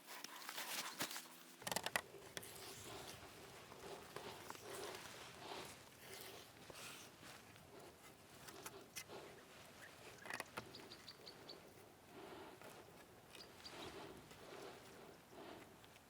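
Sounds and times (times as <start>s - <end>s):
small bird chirping: 9.3s - 11.8s, 13.3s - 14.1s.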